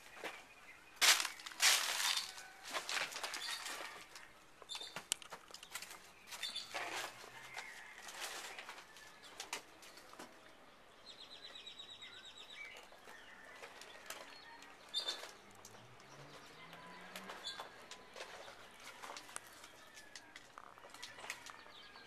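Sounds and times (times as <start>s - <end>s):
sharp clicks and scuffs: 1.0s - 7.7s
faint bird chirps: 11.1s - 15.3s.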